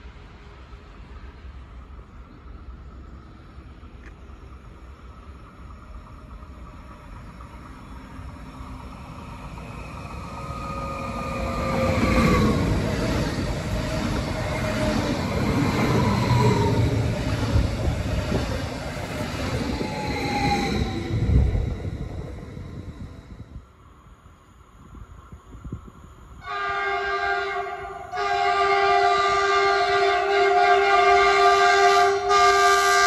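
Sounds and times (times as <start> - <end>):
train wheels rumbling on rails: 0.0 - 33.0
train motor whine: 5.9 - 23.6.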